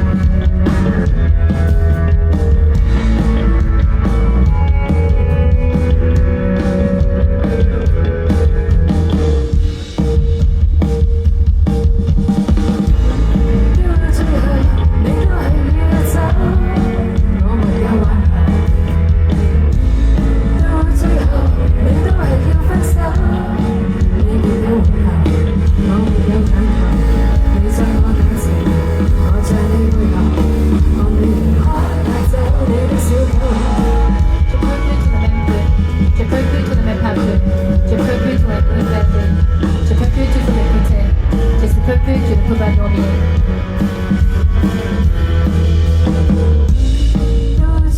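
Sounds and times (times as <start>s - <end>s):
bass: 0.0s - 47.9s
drums: 0.0s - 47.9s
person singing: 13.4s - 43.8s.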